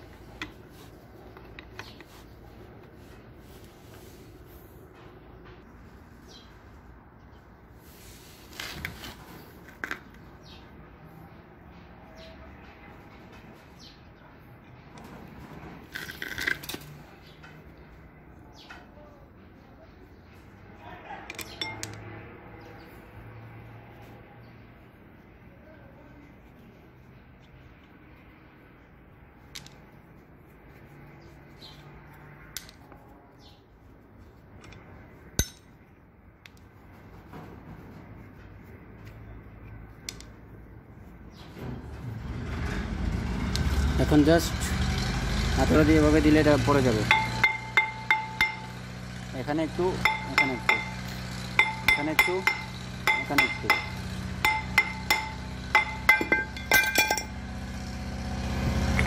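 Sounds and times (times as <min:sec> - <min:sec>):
wrench and metal parts clattering: 0:15.9 - 0:17.0, 0:21.3 - 0:22.0, 0:47.0 - 0:48.8, 0:49.9 - 0:57.4.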